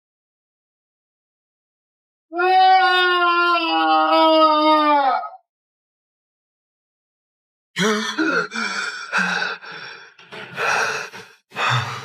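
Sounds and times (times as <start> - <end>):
man gasping for breath: 7.8 - 12.0.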